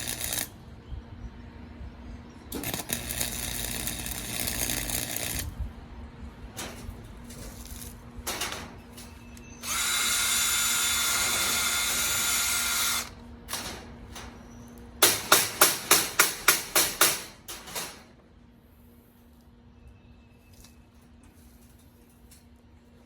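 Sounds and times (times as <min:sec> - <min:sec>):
power tool motor whining: 0:09.6 - 0:13.2
sharp knocks: 0:15.0 - 0:18.1.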